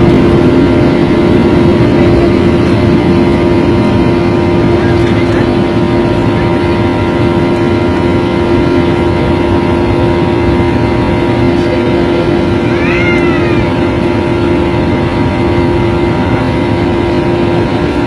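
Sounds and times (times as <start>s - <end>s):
jet engine roar in cabin: 0.0s - 18.0s.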